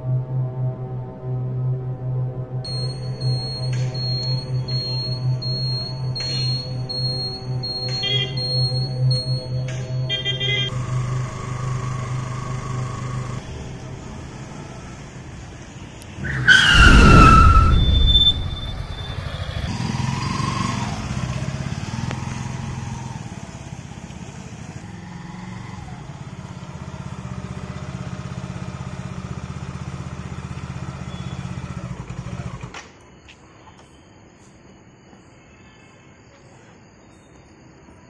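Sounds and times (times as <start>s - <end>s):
motorbike engine rumbling: 2.7s - 32.8s
loud falling whine: 16.4s - 19.8s.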